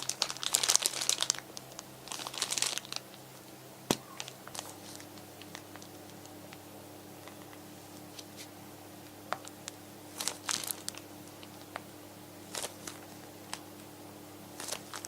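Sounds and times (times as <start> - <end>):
crinkling rustles: 0.0 - 6.6, 9.3 - 13.9, 14.5 - 15.0
faint steady hum: 0.0 - 15.0.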